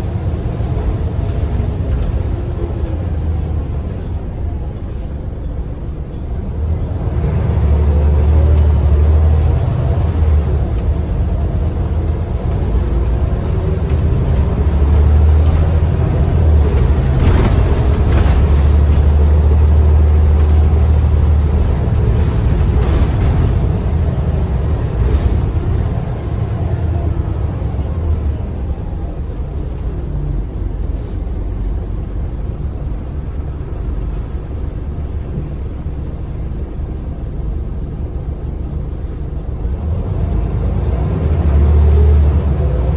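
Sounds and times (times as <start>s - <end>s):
bus diesel engine drone: 0.0s - 42.9s
knocks and rattles: 9.2s - 26.6s.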